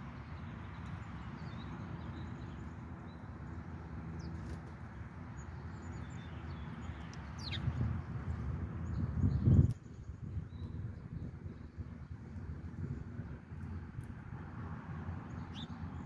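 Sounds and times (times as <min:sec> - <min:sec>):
bird chirps: 0:05.8 - 0:07.8, 0:15.3 - 0:16.0.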